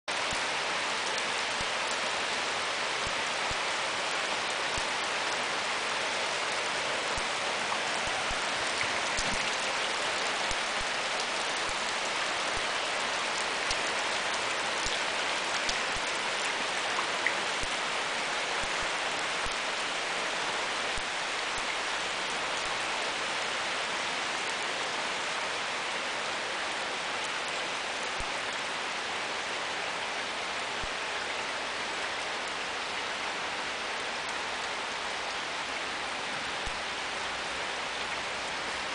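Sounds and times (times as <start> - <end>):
heavy rain on wet asphalt: 0.1 - 38.9.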